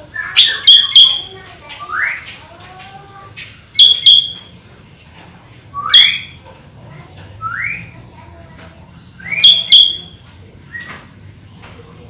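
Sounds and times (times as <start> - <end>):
bulbul whistled calls: 0.2 - 1.3, 3.8 - 4.4, 5.8 - 6.4, 9.2 - 10.9.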